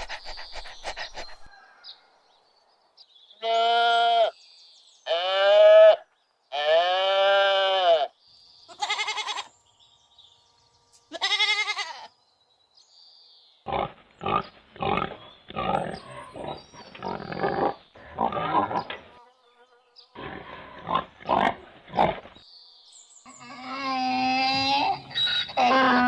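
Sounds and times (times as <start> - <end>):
animal bleat: 3.4 - 4.4, 5.1 - 9.6, 11.0 - 12.1, 23.3 - 26.0
pigs grunting: 13.7 - 19.1, 20.2 - 22.4, 23.3 - 26.0.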